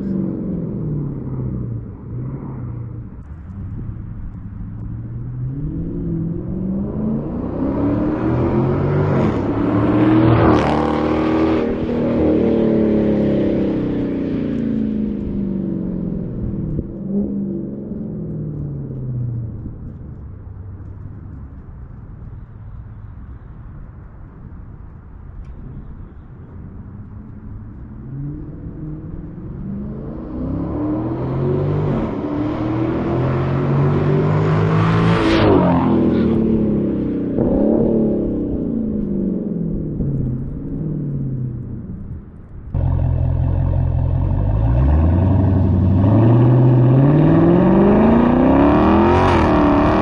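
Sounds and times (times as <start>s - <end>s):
car exhaust accelerating: 0.0s - 50.0s
car exhaust revving: 27.8s - 50.0s.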